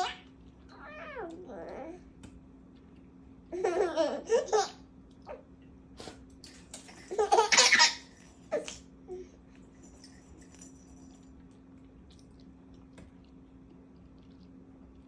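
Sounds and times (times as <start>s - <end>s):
baby laughing: 0.0s - 0.2s, 3.5s - 4.8s, 7.0s - 8.8s.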